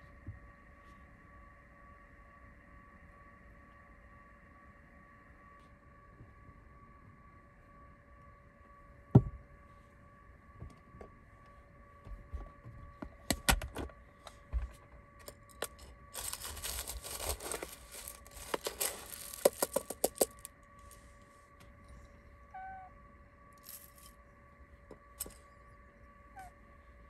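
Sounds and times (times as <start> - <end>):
faint electrical hum: 0.0 - 27.0
plastic packaging crinkling: 15.2 - 21.0.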